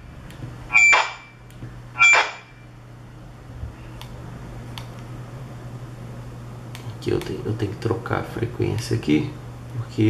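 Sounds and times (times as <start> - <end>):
steady low hum: 0.0 - 10.0
high beep: 0.7 - 1.4, 2.0 - 2.6.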